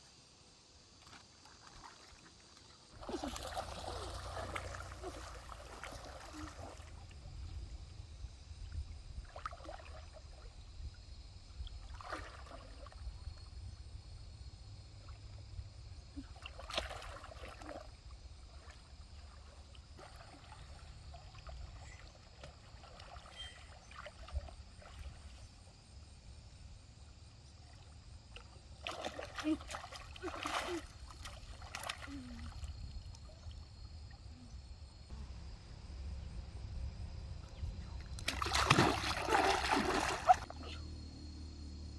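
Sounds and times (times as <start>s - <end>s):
stream water trickling: 0.2s - 35.5s, 37.0s - 40.8s
small splashes and knocks: 1.0s - 7.6s, 9.1s - 10.6s, 11.5s - 13.5s, 16.2s - 25.8s, 27.5s - 34.3s, 37.4s - 40.8s
low rumble: 35.1s - 38.3s.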